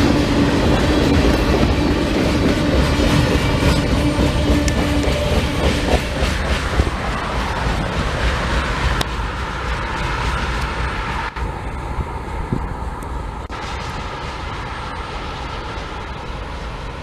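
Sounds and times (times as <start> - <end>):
train wheels clattering on rails: 0.0 - 11.3.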